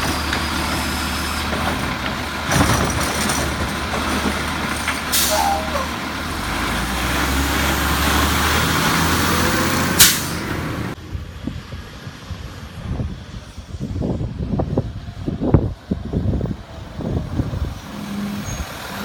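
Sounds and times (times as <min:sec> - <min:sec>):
garbage truck engine drone: 0:00.0 - 0:14.3
short air hiss: 0:10.0 - 0:10.4.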